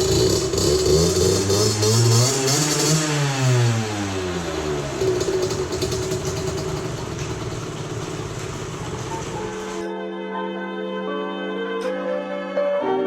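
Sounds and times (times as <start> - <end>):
two-stroke engine idling: 0.0 - 9.9.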